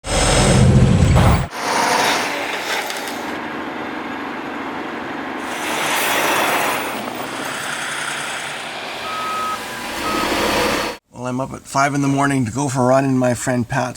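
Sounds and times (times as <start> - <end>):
heavy machinery rush: 0.0 - 11.0.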